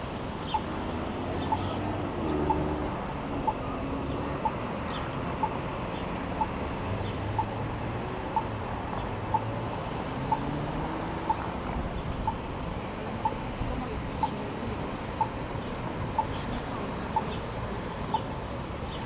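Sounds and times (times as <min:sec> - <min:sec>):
street traffic hum: 0:00.0 - 0:19.0
crossing signal beeps: 0:11.3 - 0:14.5.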